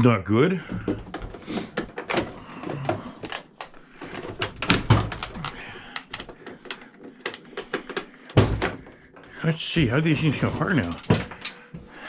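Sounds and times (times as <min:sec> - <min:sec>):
clicks and knocks of hard parts: 0:00.7 - 0:09.5, 0:10.2 - 0:12.0.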